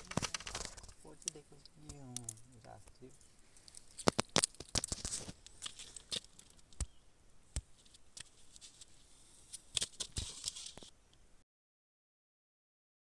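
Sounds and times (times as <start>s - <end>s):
handling rustles: 0.0s - 7.0s, 7.6s - 10.9s.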